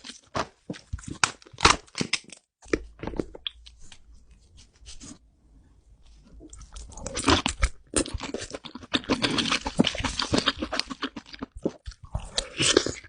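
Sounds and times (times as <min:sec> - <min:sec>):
crab shell crunching and cracking: 0:00.9 - 0:03.8, 0:06.6 - 0:13.0.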